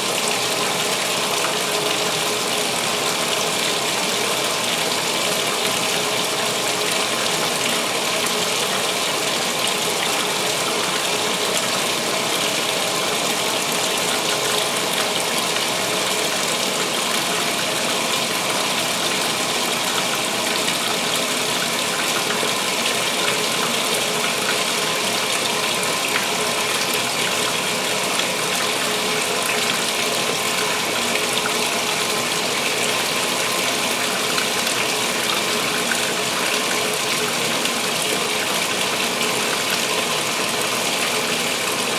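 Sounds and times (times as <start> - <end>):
water gushing into washer tub: 0.0 - 41.9.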